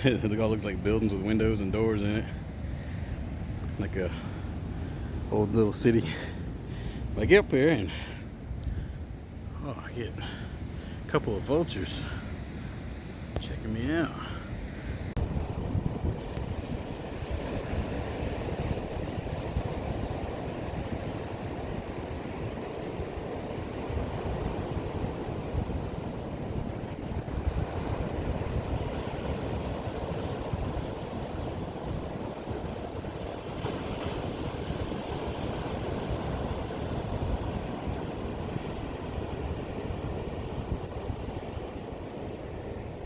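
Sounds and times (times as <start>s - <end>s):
ocean surf breaking: 0.0s - 43.0s
wind buffeting microphone: 10.3s - 43.0s.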